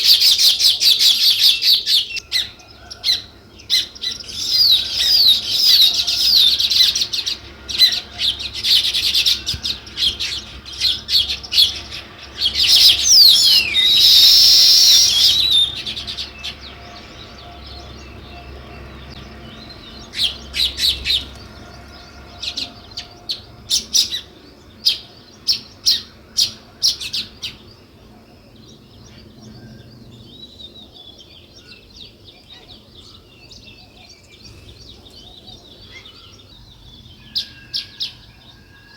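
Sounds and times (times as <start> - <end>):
sparrows chirping: 0.0 - 38.9
loud hissy burst: 13.0 - 15.7.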